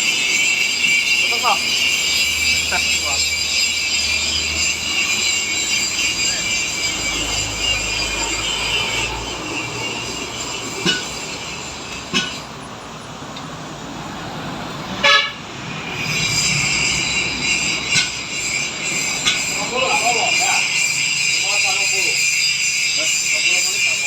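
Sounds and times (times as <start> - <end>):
high-pitched whine: 0.0 - 14.2, 15.4 - 24.0
sharp metallic knocks: 10.0 - 12.7, 15.9 - 22.2.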